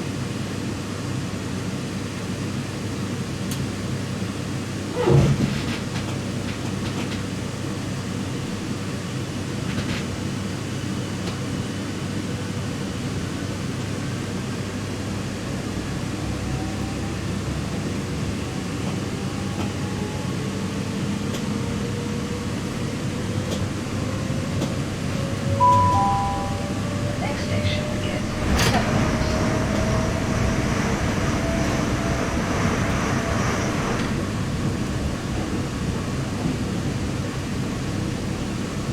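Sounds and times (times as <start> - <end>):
train rumbling: 3.4 - 38.9
two-note tone: 25.6 - 27.2.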